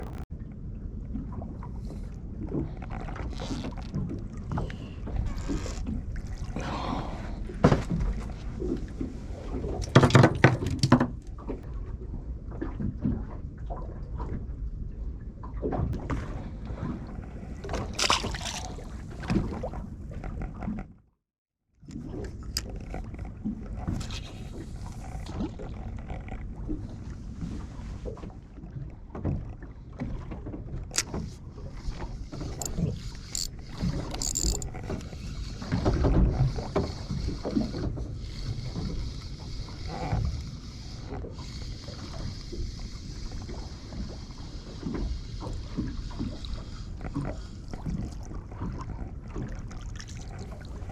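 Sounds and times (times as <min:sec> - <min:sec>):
low rumble of water and wind: 0:00.0 - 0:50.9
knocks and clicks on boat: 0:09.7 - 0:11.6, 0:28.9 - 0:38.0.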